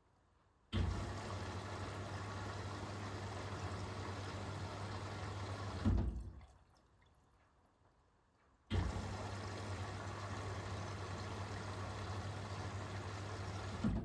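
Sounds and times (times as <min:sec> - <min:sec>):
water rushing into washing machine: 0:00.8 - 0:06.6, 0:08.7 - 0:14.0.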